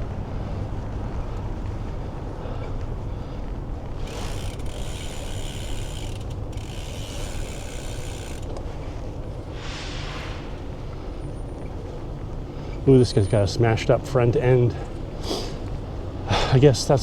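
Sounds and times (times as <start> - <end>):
bicycle freehub ratcheting: 3.9 - 8.8
short hiss: 9.5 - 11.0.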